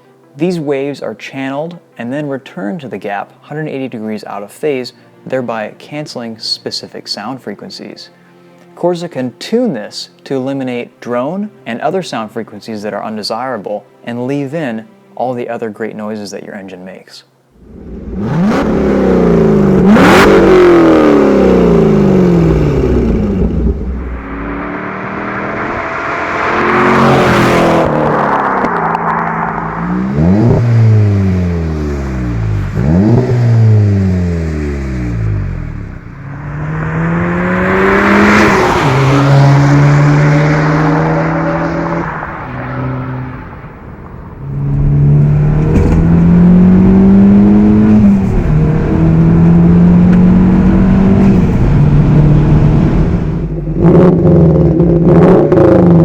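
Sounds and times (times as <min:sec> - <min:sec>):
car engine revving: 0:17.6 - 0:56.0.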